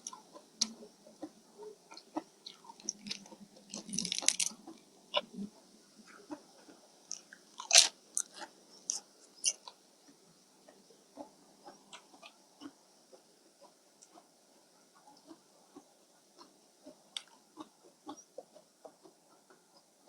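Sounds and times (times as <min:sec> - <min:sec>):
person chewing and smacking: 0:01.9 - 0:04.8, 0:07.1 - 0:09.8.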